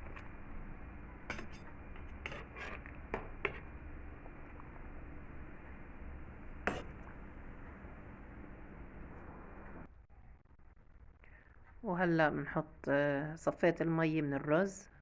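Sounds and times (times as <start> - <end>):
steady low hum: 0.0 - 9.9
utensils and dishes clinking: 1.0 - 3.8.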